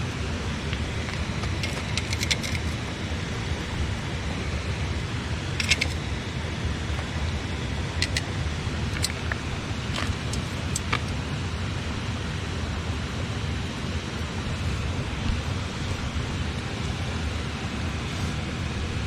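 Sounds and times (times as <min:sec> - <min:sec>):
campfire crackling: 0:00.0 - 0:12.0
river rushing: 0:00.0 - 0:13.4.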